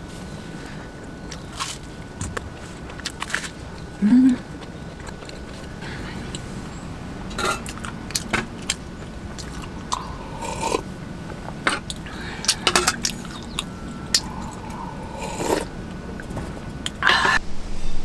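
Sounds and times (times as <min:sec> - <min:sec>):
crunchy chewing of toast: 0:01.1 - 0:06.5, 0:07.4 - 0:10.9, 0:11.8 - 0:15.7.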